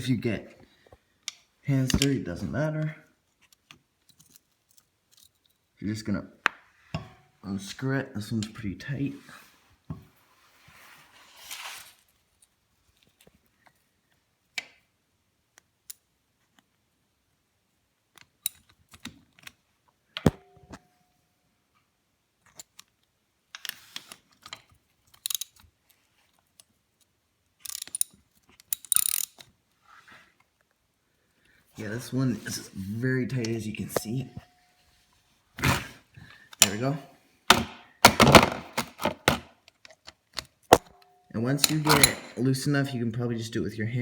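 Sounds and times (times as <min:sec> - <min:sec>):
socket ratchet clicking: 0:25.2 - 0:25.6, 0:27.6 - 0:29.4
sharp metallic clank: 0:41.6 - 0:42.4.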